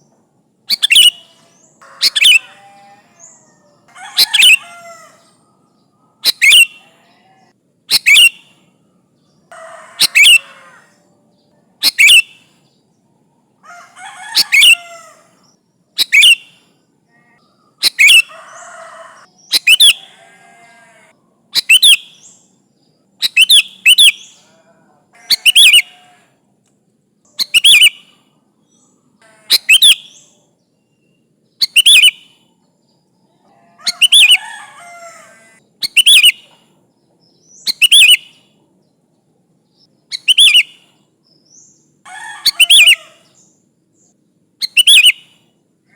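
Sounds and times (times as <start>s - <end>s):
bird whistled call: 0.7s - 2.6s, 6.2s - 6.8s, 7.9s - 8.4s, 10.0s - 10.5s, 11.8s - 12.5s, 16.0s - 16.6s, 17.8s - 18.3s, 19.5s - 20.1s, 21.6s - 22.3s, 23.2s - 24.4s, 25.4s - 26.0s, 27.4s - 28.1s, 29.5s - 30.4s, 31.6s - 32.3s, 33.9s - 34.6s, 35.8s - 36.5s, 37.5s - 38.4s, 40.1s - 40.8s, 42.5s - 43.1s, 44.6s - 45.4s
bird chattering: 0.7s - 5.4s, 6.2s - 7.0s, 7.9s - 8.6s, 9.5s - 10.9s, 11.8s - 12.5s, 13.7s - 15.3s, 16.0s - 16.6s, 17.2s - 22.3s, 25.2s - 26.0s, 27.3s - 28.1s, 29.2s - 30.3s, 31.6s - 32.2s, 33.8s - 36.7s, 40.1s - 40.8s, 42.2s - 43.4s, 44.6s - 45.3s.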